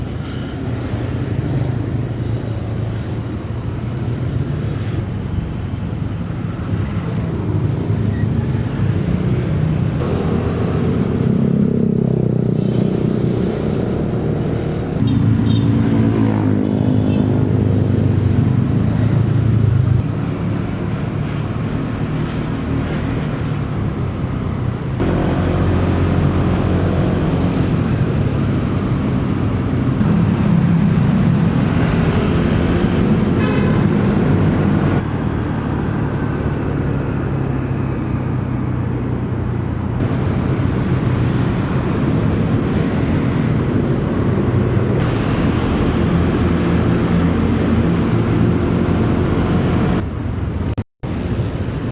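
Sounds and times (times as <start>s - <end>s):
city traffic and road noise: 0.0s - 51.9s
motorcycle engine running: 30.0s - 32.7s.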